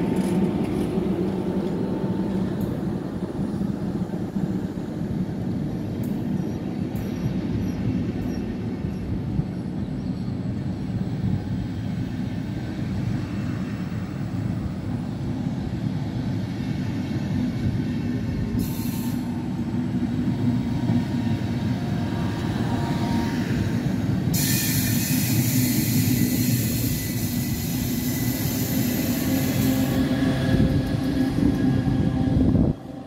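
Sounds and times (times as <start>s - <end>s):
electric locomotive passing: 0.0s - 33.0s
train wheels rumbling: 0.0s - 33.0s
high-pitched wheel squeal: 24.4s - 30.1s.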